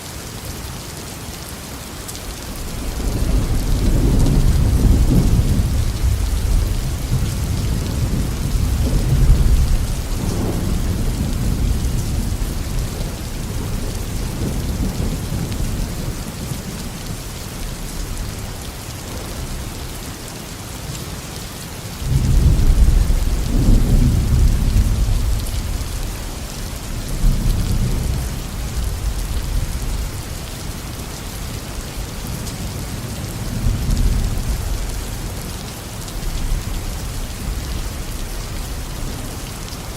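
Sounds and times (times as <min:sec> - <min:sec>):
heavy rain: 0:00.0 - 0:39.9
rolling thunder: 0:02.6 - 0:16.6, 0:22.0 - 0:30.3.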